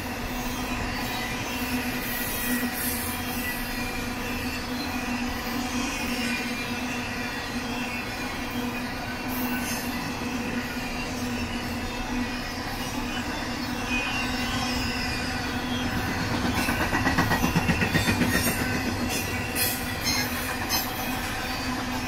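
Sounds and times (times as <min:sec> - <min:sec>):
train wheels rolling on rails: 0:00.0 - 0:22.0
rapid clacks of wheels: 0:15.7 - 0:22.0.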